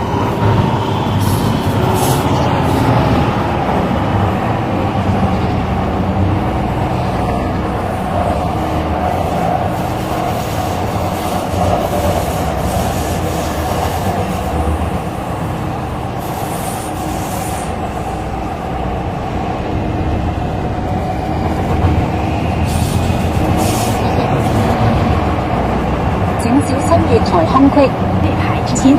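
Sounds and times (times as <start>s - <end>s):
train wheels rumbling on track: 0.0s - 28.9s.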